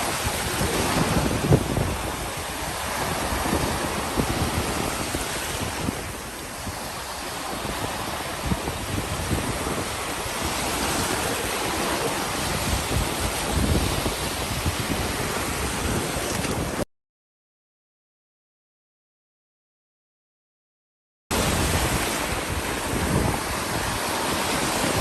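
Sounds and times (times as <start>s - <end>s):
ocean surf on beach: 0.0s - 16.8s, 21.3s - 25.0s.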